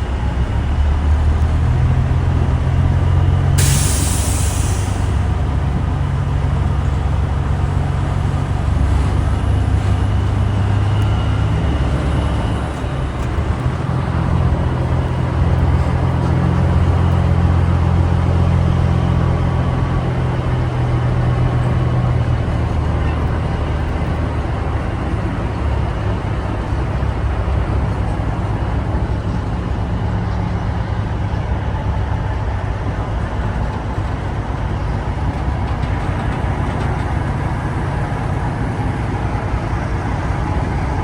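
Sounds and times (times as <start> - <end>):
diesel truck engine running: 0.0 - 41.0
air brake hiss: 3.6 - 5.3.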